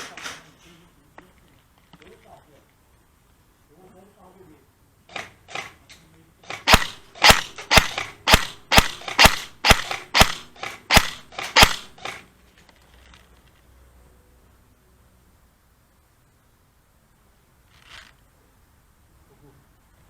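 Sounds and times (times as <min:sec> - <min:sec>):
airsoft gun shots: 0:05.1 - 0:05.8, 0:06.4 - 0:12.3.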